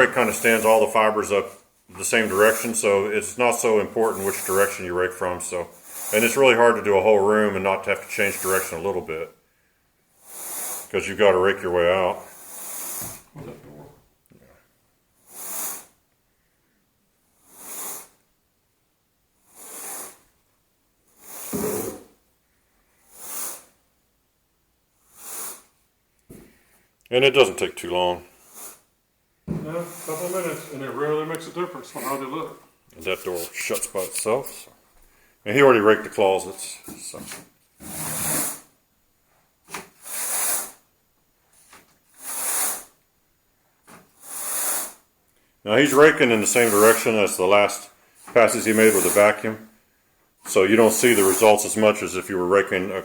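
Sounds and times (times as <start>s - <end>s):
carpet rake swishing through carpet: 0.1s - 1.4s, 2.0s - 9.0s, 10.2s - 11.0s, 11.6s - 13.3s, 15.3s - 15.9s, 17.4s - 18.2s, 19.5s - 20.3s, 21.1s - 22.1s, 23.0s - 23.8s, 25.0s - 25.8s, 28.3s - 28.9s, 29.6s - 32.3s, 36.2s - 38.7s, 39.7s - 40.8s, 41.5s - 43.0s, 43.8s - 45.1s, 45.7s - 49.6s, 50.4s - 52.2s.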